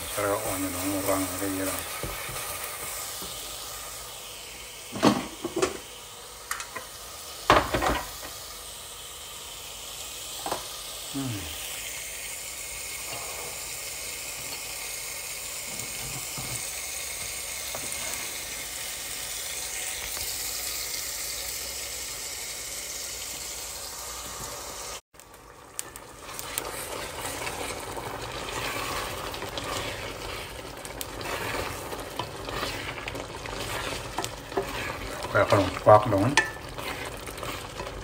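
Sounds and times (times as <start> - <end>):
sauce sizzling in a pot: 0.0 - 38.0
wooden spoon scraping a pot: 26.2 - 38.0.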